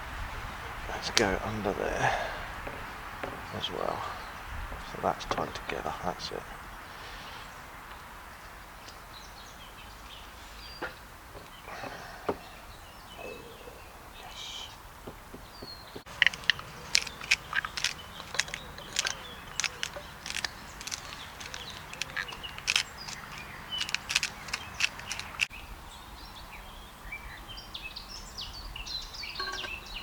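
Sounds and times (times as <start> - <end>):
faint birds chirping: 0.0 - 30.0
campfire crackling and popping: 16.0 - 25.5.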